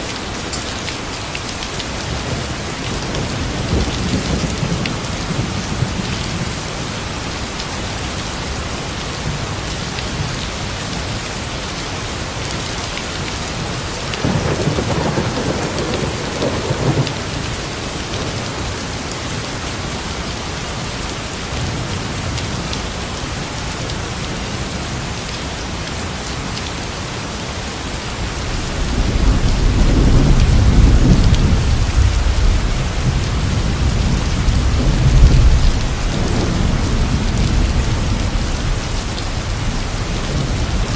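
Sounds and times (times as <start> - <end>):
heavy rain: 0.0 - 40.9
low rumble of thunder: 2.0 - 7.4, 13.6 - 18.9, 28.4 - 40.9.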